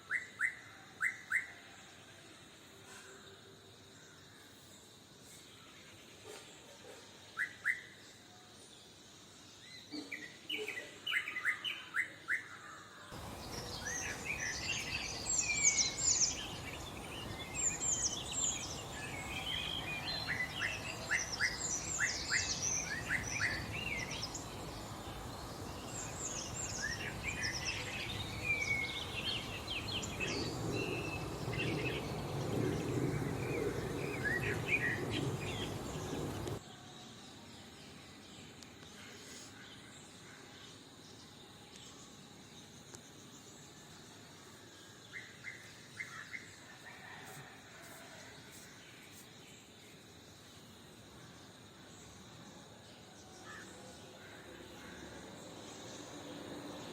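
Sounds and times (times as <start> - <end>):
songbirds chirping: 3.6 - 56.9
background hiss: 13.1 - 56.9.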